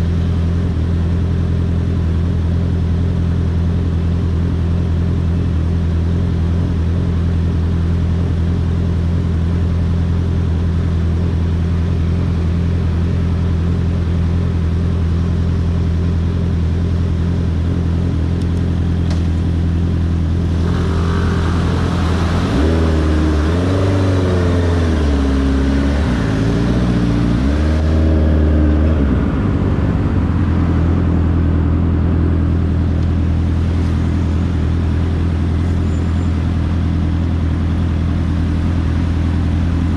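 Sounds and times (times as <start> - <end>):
motorcycle engine revving: 0.0 - 39.9
rushing noise: 20.3 - 31.9.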